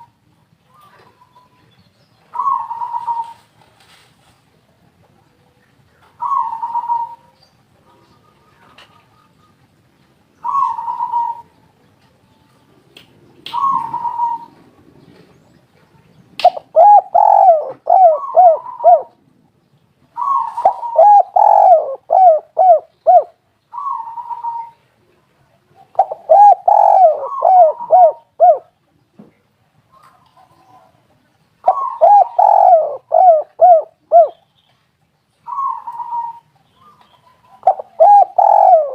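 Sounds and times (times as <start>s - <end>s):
dove cooing: 2.3s - 3.5s, 6.2s - 7.4s, 10.4s - 11.6s, 13.5s - 15.2s, 16.4s - 19.2s, 20.2s - 24.9s, 25.8s - 28.8s, 31.6s - 34.4s, 35.4s - 36.5s, 37.2s - 38.9s.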